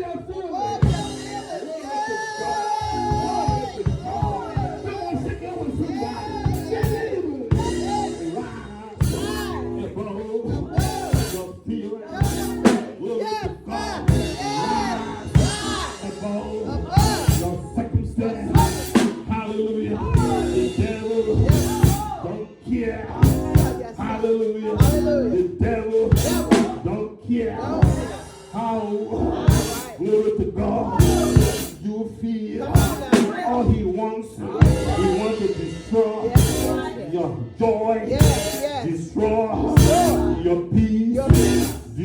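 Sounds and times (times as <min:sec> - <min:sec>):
voices singing and calling out: 0:00.0 - 0:42.0
drum kit hits: 0:00.8 - 0:01.6, 0:05.8 - 0:08.4, 0:09.0 - 0:09.6, 0:10.7 - 0:11.5, 0:12.2 - 0:14.7, 0:15.3 - 0:17.7, 0:18.5 - 0:19.5, 0:20.1 - 0:22.2, 0:23.2 - 0:24.0, 0:24.8 - 0:27.0, 0:27.8 - 0:28.8, 0:29.4 - 0:30.0, 0:31.0 - 0:31.8, 0:32.8 - 0:33.8, 0:34.6 - 0:37.0, 0:38.2 - 0:38.8, 0:39.8 - 0:40.4, 0:41.2 - 0:42.0
held instrument notes: 0:00.8 - 0:10.2
sustained chords: 0:02.8 - 0:11.4, 0:13.7 - 0:19.2.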